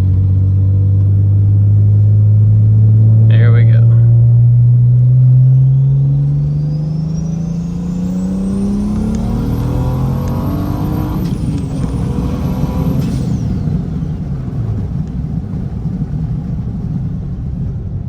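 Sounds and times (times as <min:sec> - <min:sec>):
car engine revving: 0:00.0 - 0:16.7
turbo whine: 0:03.0 - 0:14.2.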